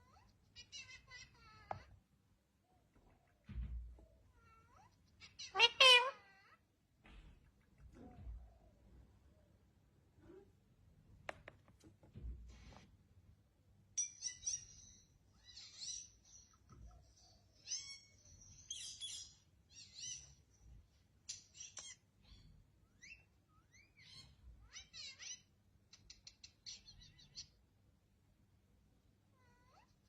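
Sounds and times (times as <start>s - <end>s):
parrots chirping and squawking: 0.0s - 1.9s, 4.3s - 6.6s, 14.0s - 20.6s, 21.2s - 27.6s.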